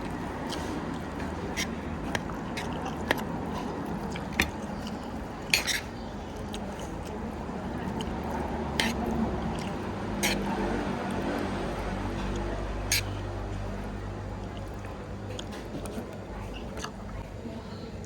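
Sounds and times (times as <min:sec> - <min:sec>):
steady background hum: 0:00.0 - 0:18.0
dishes and utensils clinking: 0:04.3 - 0:06.0.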